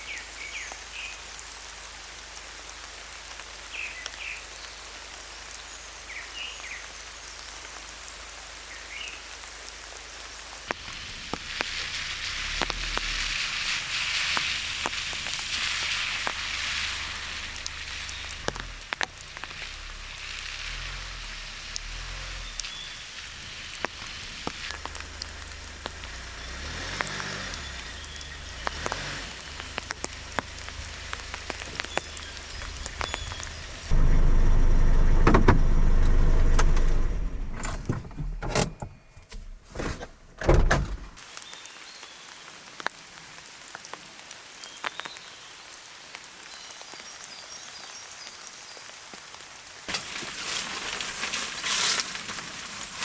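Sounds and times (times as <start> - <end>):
steady rainfall: 0.0 - 37.7, 41.1 - 53.0
raindrops tapping on surface: 9.3 - 38.2, 40.6 - 52.7.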